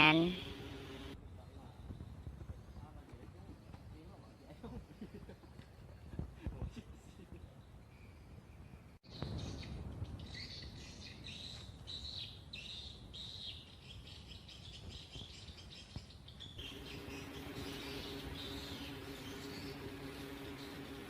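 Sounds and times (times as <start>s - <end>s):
steady low hum: 0.0s - 1.2s, 16.6s - 21.0s
birds chirping: 9.2s - 21.0s.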